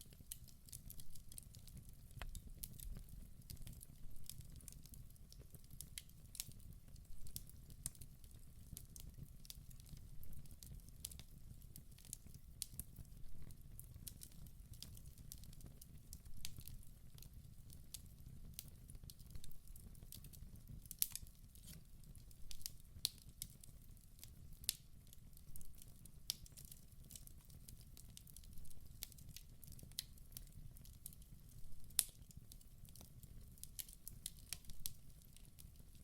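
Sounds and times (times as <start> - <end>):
low rumble of flame: 0.0 - 23.9
wood fire crackling and popping: 0.0 - 36.0.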